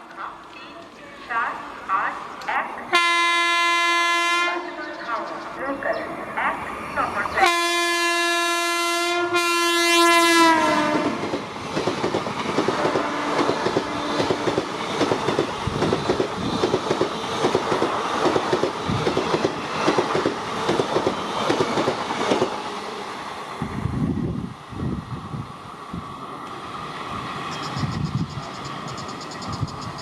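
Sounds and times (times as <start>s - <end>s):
train horn: 2.9s - 4.9s, 7.4s - 11.2s, 12.7s - 14.5s
train wheels clattering over rail joints: 11.1s - 22.6s.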